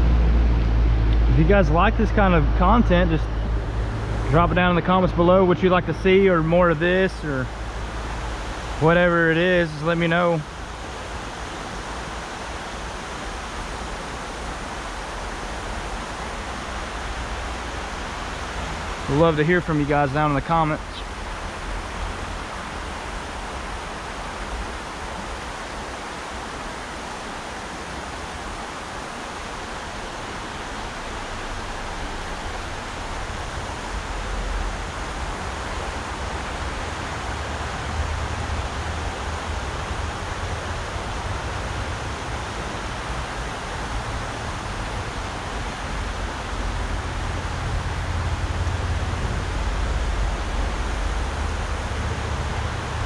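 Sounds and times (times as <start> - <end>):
low rumble: 0.0 - 9.2
river water rushing: 0.0 - 53.0.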